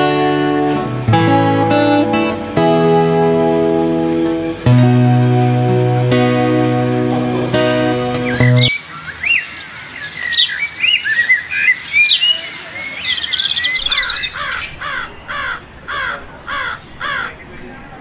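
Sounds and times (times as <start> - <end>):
guitar music: 0.0 - 8.7
small birds chirping: 8.2 - 17.7
crow cawing: 13.8 - 17.4.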